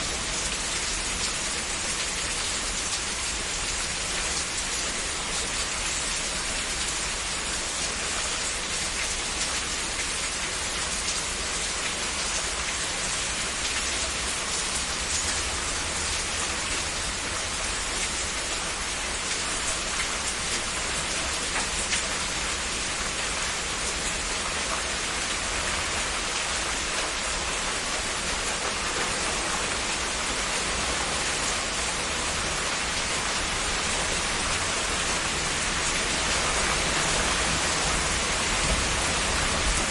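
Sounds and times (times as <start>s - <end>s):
heavy rain hissing: 10.9s - 39.9s.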